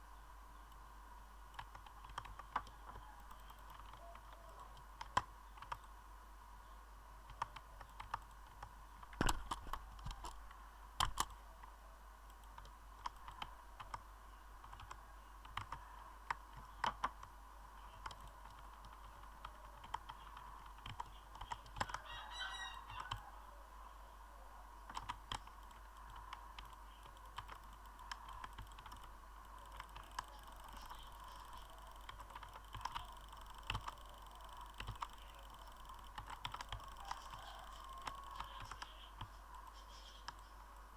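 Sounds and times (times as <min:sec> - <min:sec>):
steady low hum: 0:00.0 - 0:40.9
keyboard key clicks: 0:07.3 - 0:11.4, 0:14.6 - 0:17.3, 0:24.9 - 0:40.5.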